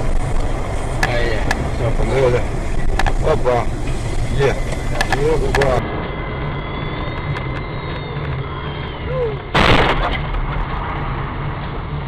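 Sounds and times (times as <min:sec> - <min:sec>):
car engine and road rumble: 0:00.0 - 0:12.0
loud impact: 0:09.5 - 0:11.4.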